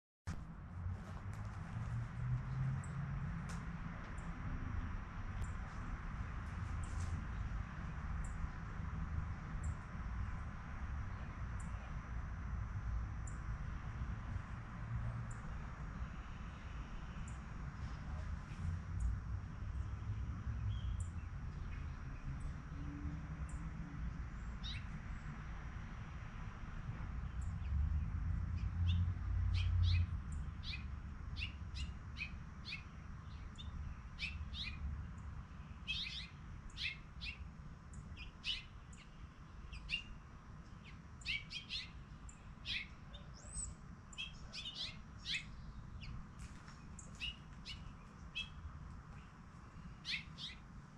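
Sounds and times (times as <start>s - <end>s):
small birds chirping: 15.0s - 22.8s, 23.4s - 25.3s, 27.2s - 50.7s.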